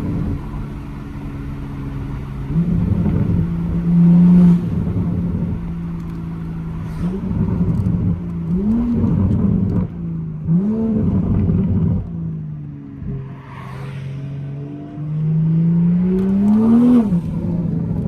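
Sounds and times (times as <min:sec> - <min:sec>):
exhaust crackles: 0:00.0 - 0:12.3
car engine revving: 0:00.0 - 0:18.0.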